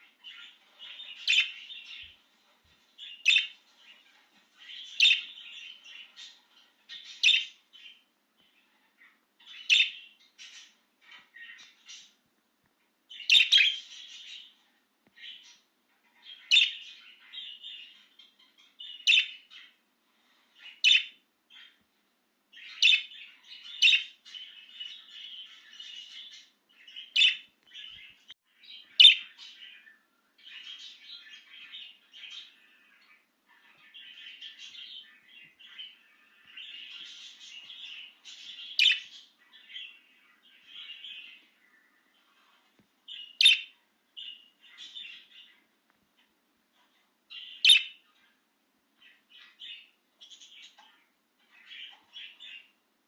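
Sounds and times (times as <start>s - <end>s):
budgerigar chirping and warbling: 13.2s - 13.9s, 43.3s - 43.8s, 47.4s - 48.0s.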